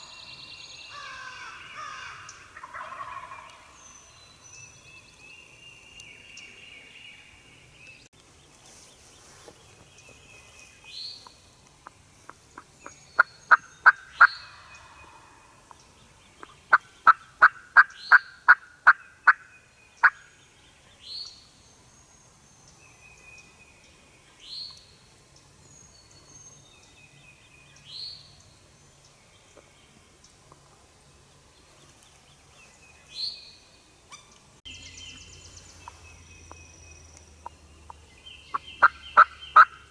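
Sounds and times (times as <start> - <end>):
turkey calling sharp notes: 38.5 - 39.8.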